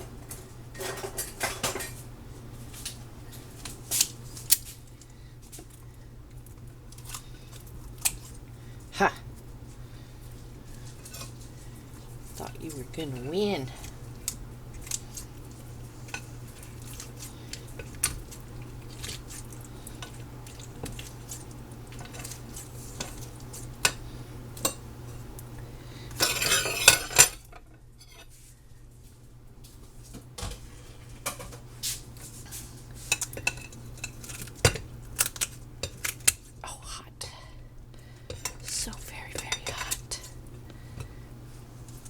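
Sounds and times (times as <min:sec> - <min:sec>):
low steady hum: 0:00.0 - 0:42.0
metal utensils clinking on dishes: 0:26.2 - 0:27.6.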